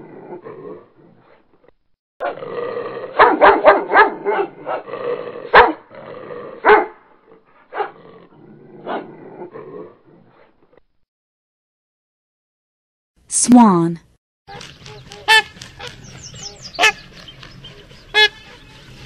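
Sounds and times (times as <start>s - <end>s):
dog barking: 3.1s - 4.9s, 5.5s - 5.9s, 6.6s - 7.0s, 7.7s - 8.0s, 8.8s - 9.1s.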